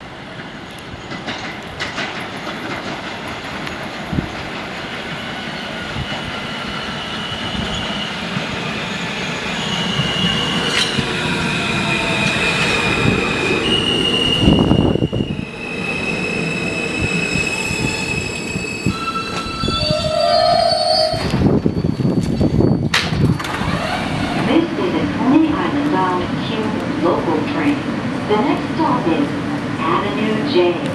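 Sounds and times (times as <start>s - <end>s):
subway train rumble: 0.0s - 30.9s
wheels squealing on rails: 0.2s - 26.7s
stepped motor tones: 23.4s - 24.8s.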